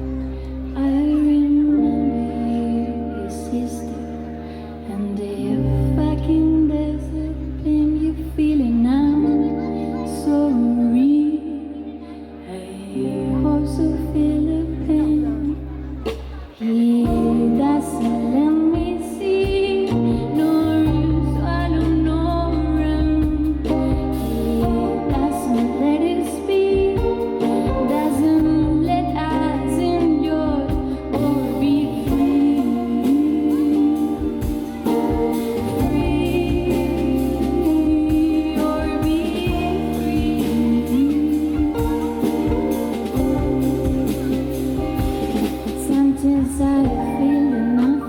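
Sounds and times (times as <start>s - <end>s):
bass and chords: 0.0s - 48.0s
person singing: 0.0s - 48.0s
percussion: 30.1s - 48.0s.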